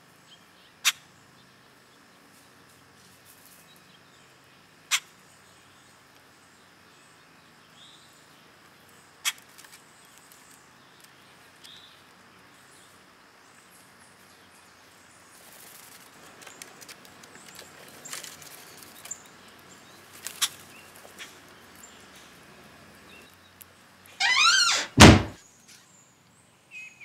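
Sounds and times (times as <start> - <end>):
rustling and scratching in dry litter: 15.3 - 23.0.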